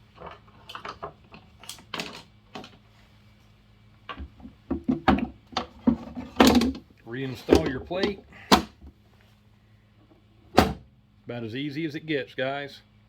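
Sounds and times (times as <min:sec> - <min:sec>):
parts knocking: 0:07.4 - 0:08.8.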